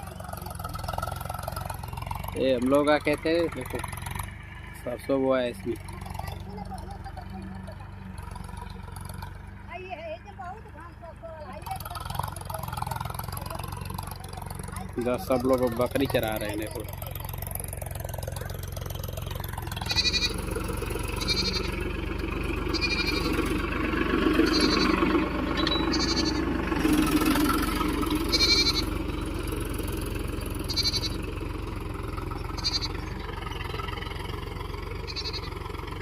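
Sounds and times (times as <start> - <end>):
goats bleating: 19.8 - 21.9, 22.6 - 23.6, 24.3 - 26.5, 28.2 - 29.0, 30.6 - 31.2, 32.4 - 33.2, 35.0 - 35.6.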